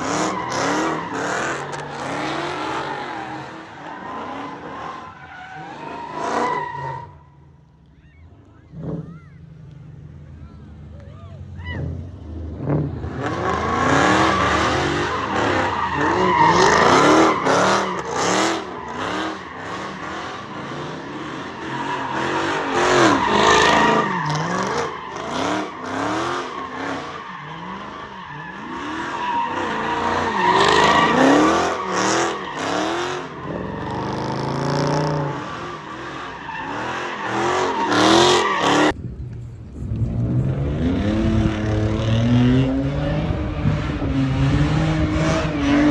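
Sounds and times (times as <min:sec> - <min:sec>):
tyres squealing and skidding: 0:00.0 - 0:09.6, 0:11.2 - 0:45.9
car engine revving: 0:11.8 - 0:45.9.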